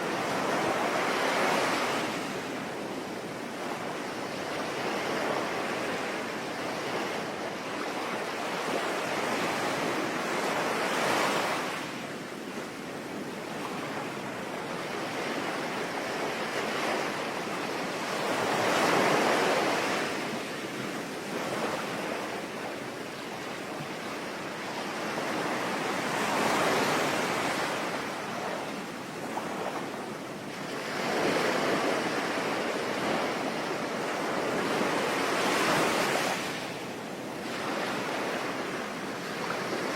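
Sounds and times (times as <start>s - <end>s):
sea waves breaking: 13.1s - 39.9s.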